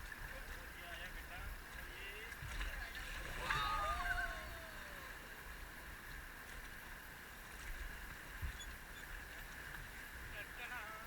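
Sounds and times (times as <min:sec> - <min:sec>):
river water rushing: 0:01.8 - 0:07.4.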